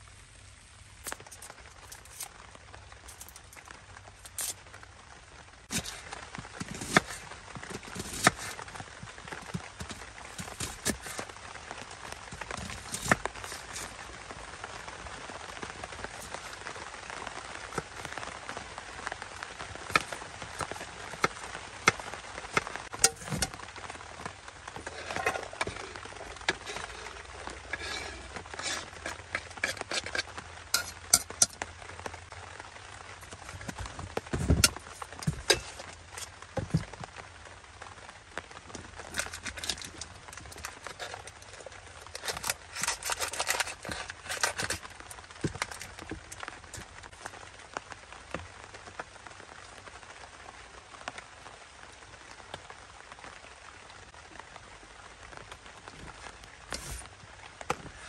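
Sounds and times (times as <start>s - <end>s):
steady rain hiss: 0.0s - 58.0s
gear being handled: 5.7s - 11.3s, 12.2s - 14.1s, 19.7s - 23.6s, 38.8s - 46.9s, 56.7s - 57.1s.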